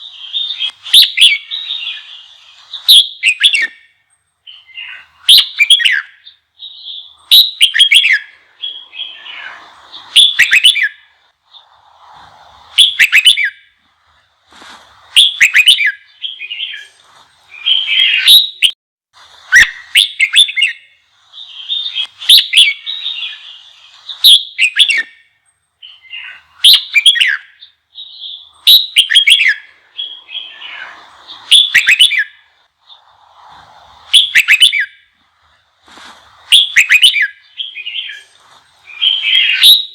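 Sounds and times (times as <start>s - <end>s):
bird singing whistled phrases: 0.0s - 11.8s, 12.7s - 13.7s, 15.1s - 18.8s, 19.4s - 33.1s, 34.1s - 35.1s, 36.5s - 39.9s
bird chattering: 34.0s - 34.9s, 36.4s - 39.9s.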